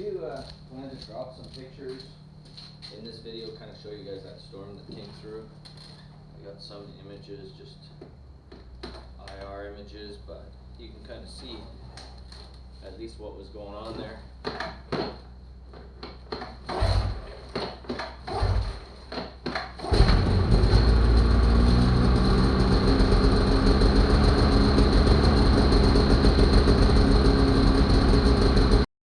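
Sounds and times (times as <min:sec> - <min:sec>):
knocks and rustles: 0:14.4 - 0:19.8
snowmobile engine running: 0:19.9 - 0:28.9.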